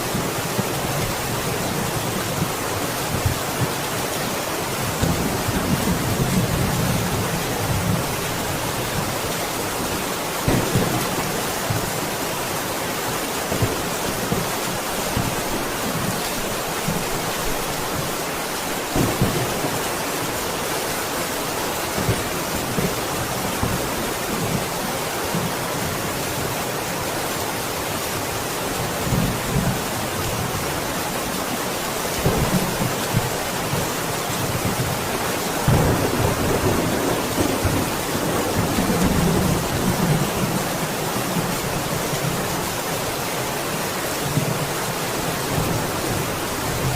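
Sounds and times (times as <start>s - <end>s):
heavy rain falling: 0.0s - 46.9s
low thunder rumbles: 34.5s - 40.8s.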